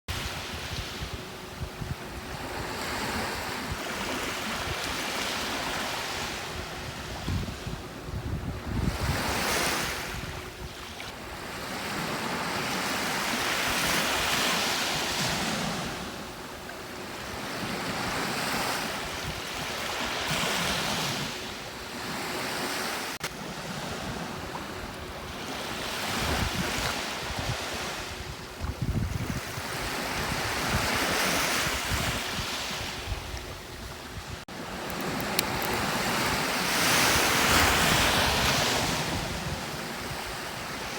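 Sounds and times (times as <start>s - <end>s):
wind buffeting microphone: 0.1s - 12.0s, 23.7s - 40.9s
sea waves breaking on beach: 0.1s - 40.9s.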